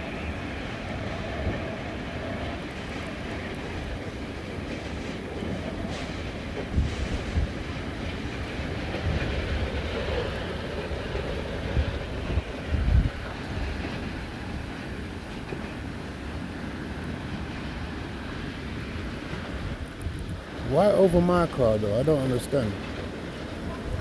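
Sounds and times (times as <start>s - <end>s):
wind buffeting microphone: 0.0s - 24.0s
strong wind rushing: 5.3s - 15.2s.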